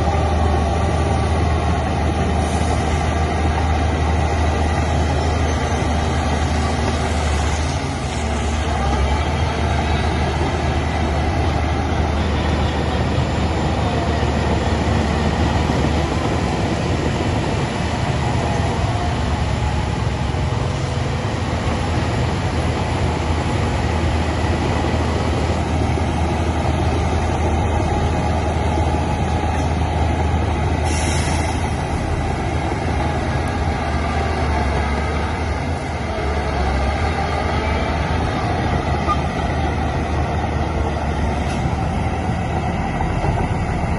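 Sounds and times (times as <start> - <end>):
heavy diesel machinery running: 0.0 - 43.9
high hiss or squeal: 30.8 - 31.7.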